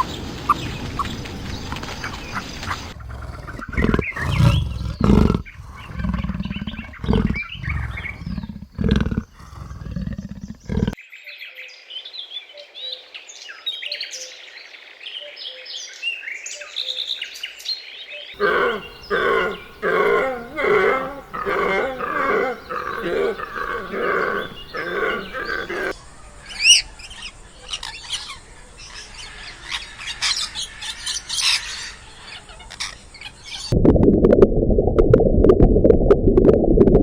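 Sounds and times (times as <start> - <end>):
bird chirping: 0.0 - 33.7
hoarse animal calls: 2.7 - 11.0, 18.4 - 26.0.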